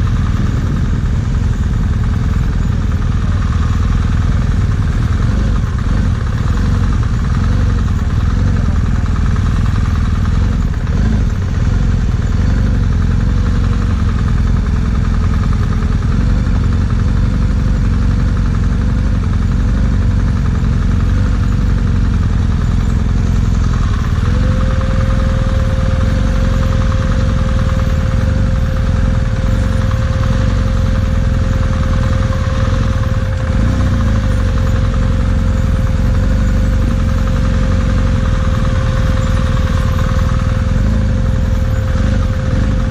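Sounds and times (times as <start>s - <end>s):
motorcycle engine rumbling: 0.0s - 42.9s
steady higher tone: 21.6s - 42.9s.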